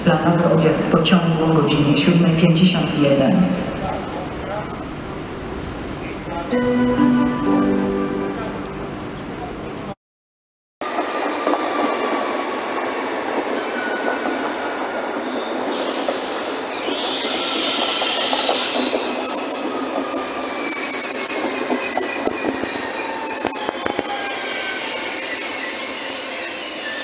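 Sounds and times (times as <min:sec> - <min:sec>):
train rumbling: 0:00.0 - 0:10.0, 0:10.8 - 0:27.0
train brakes squealing: 0:10.9 - 0:27.0
wheels clicking at rail joints: 0:11.2 - 0:27.0.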